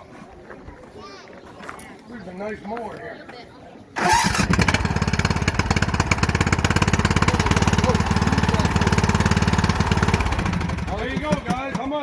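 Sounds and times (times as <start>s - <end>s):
riding mower engine running: 4.0s - 12.0s.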